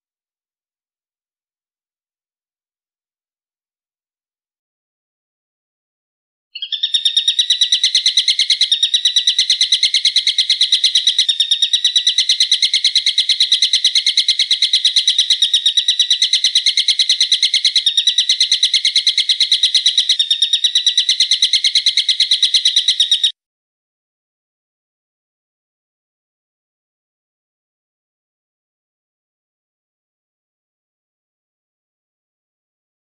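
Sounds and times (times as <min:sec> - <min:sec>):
songbird trilling: 0:06.6 - 0:23.3.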